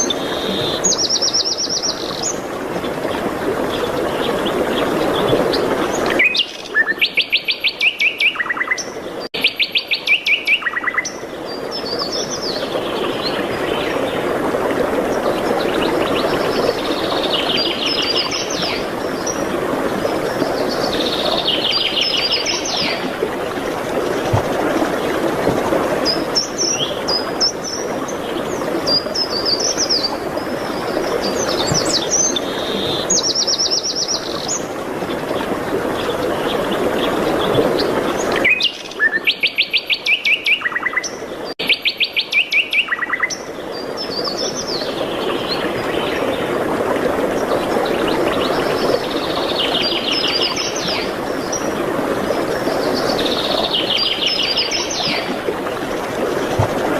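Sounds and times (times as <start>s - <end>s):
songbirds singing: 0.0s - 14.3s, 15.1s - 24.4s, 26.0s - 46.6s, 47.4s - 55.4s.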